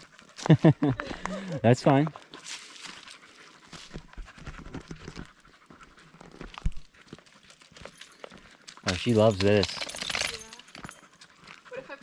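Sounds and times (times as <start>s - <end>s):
dog panting: 1.1s - 9.6s.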